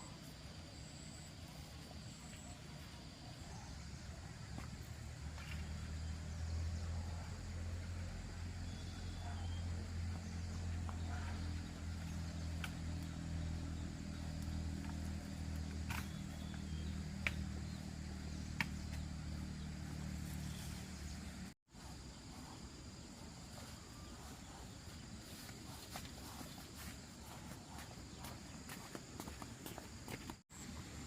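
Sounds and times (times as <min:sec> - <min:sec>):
faint outdoor noise: 0:00.0 - 0:31.0
small engine running: 0:04.8 - 0:21.6.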